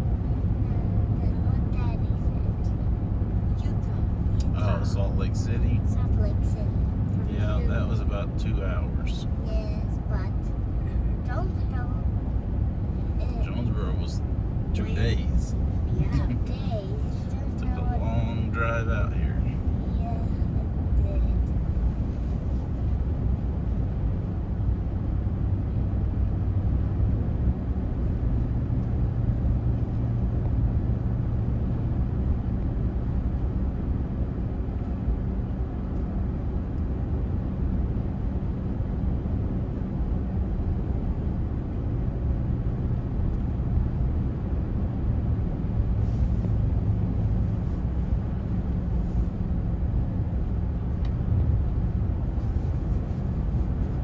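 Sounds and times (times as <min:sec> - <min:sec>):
faint hum: 0:00.0 - 0:12.2, 0:12.8 - 0:24.4
car cabin road rumble: 0:00.0 - 0:54.0.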